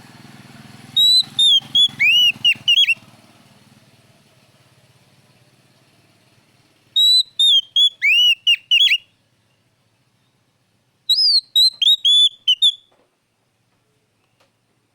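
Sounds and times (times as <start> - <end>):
bird singing whistled phrases: 1.0 - 3.0, 7.0 - 9.1, 11.1 - 12.9.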